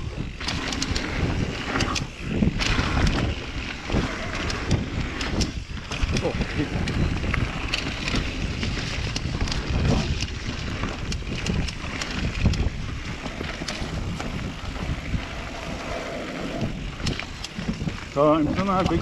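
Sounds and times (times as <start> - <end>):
bike rumbling on dirt trail: 0.0 - 19.0
wind buffeting microphone: 0.0 - 19.0
bike clicks and knocks: 4.4 - 15.1.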